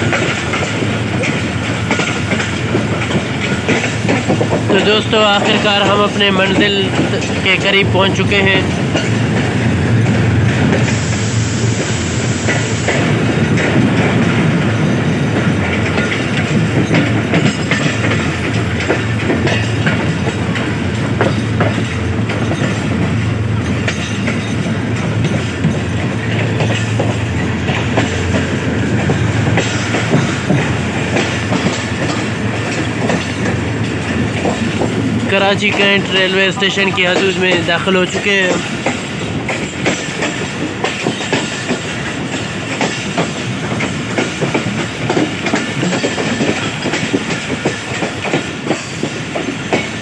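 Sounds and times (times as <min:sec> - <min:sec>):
wheels clattering over rail joints: 0:00.0 - 0:10.9, 0:13.3 - 0:50.0
train coach rumbling: 0:00.0 - 0:50.0.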